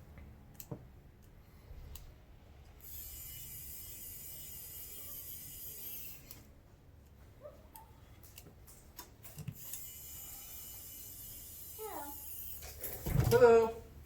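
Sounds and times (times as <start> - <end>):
light clicks of small parts: 0.1 - 2.8, 6.2 - 9.8
high-pitched mechanical whir: 2.8 - 6.4.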